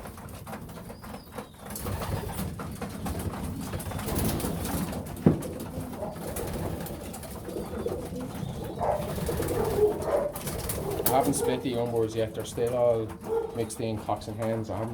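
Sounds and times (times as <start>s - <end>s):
pigeons cooing: 0.0s - 14.9s
sharp knock: 5.2s - 5.6s.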